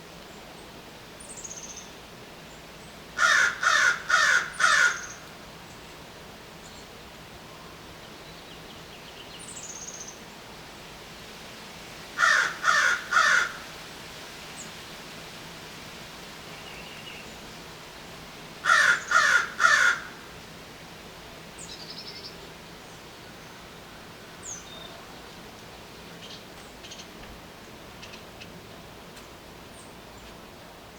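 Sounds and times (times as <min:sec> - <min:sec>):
crow cawing: 0:03.2 - 0:05.3, 0:12.2 - 0:13.7, 0:18.6 - 0:20.4.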